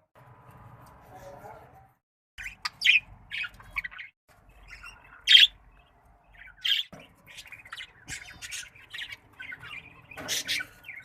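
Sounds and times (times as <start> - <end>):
budgies chirping and squawking: 2.4 - 11.0.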